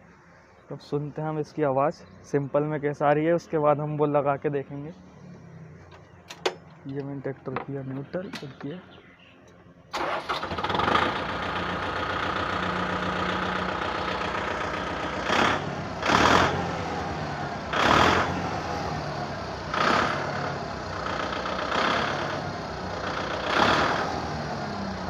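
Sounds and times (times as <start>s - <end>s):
tractor diesel engine revving: 9.9s - 25.0s.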